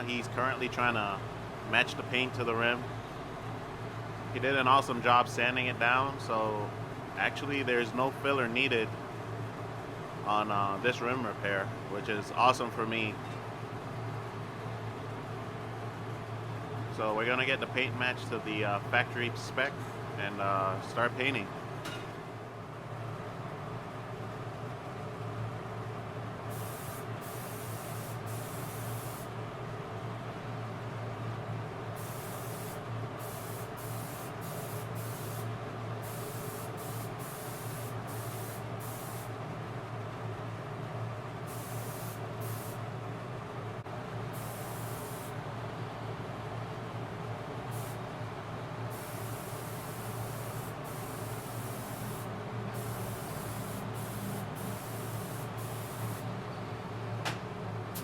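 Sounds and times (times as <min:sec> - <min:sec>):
steady low hum: 0:00.0 - 0:58.0
spray gun hissing: 0:26.5 - 0:29.3, 0:32.0 - 0:39.3, 0:41.5 - 0:42.8, 0:44.3 - 0:45.4, 0:47.7 - 0:48.0, 0:48.9 - 0:56.3.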